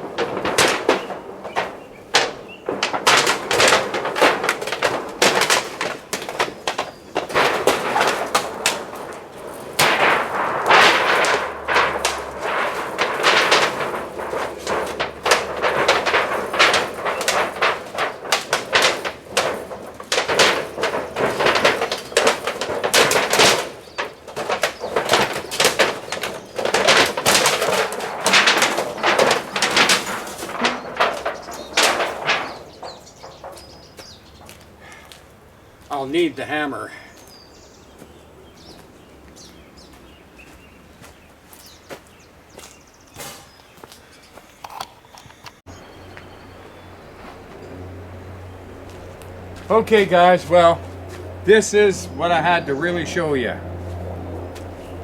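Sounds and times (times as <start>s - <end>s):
sheet metal knocking and rattling: 0.0s - 34.9s.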